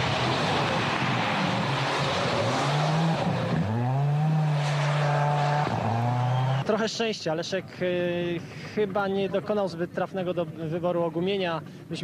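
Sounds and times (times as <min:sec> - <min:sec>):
rally car engine revving: 0:00.0 - 0:06.7
road and tyre noise: 0:00.0 - 0:12.0.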